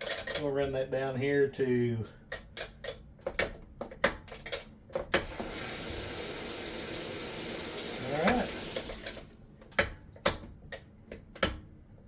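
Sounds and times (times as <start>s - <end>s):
water hissing into washer: 5.2s - 9.4s.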